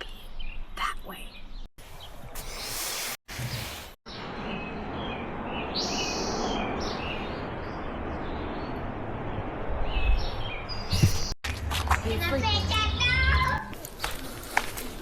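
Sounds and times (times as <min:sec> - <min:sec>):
small birds chirping: 0:00.0 - 0:03.1
outdoor noise: 0:00.0 - 0:15.0.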